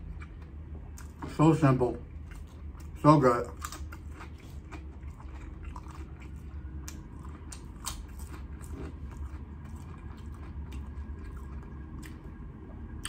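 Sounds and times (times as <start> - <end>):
low steady hum: 0.0 - 13.0
person chewing crunchy chips: 2.1 - 12.3.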